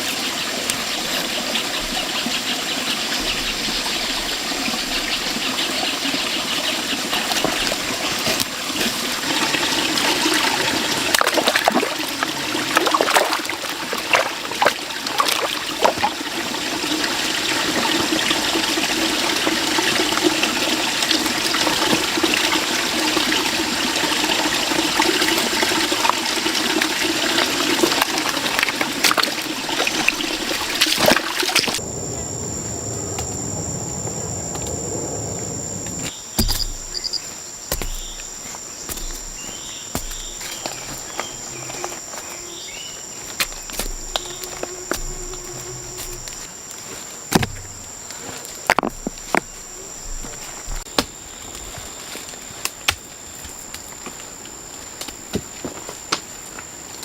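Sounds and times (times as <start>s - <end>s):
insect drone: 0.0s - 57.0s
running splashing water: 7.0s - 36.1s.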